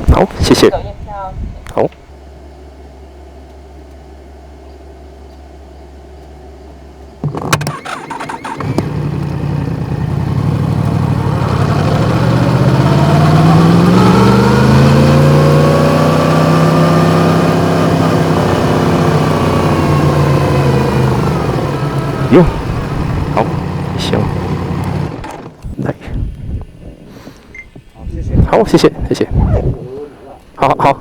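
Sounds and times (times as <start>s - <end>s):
motorcycle engine starting and running: 7.2s - 27.0s.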